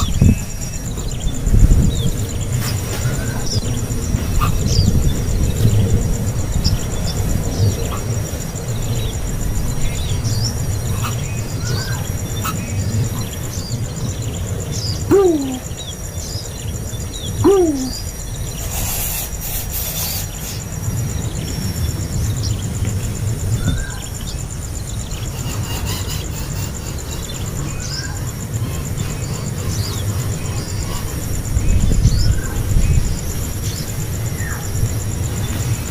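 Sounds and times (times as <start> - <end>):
low falling bird calls: 9.8 - 18.6.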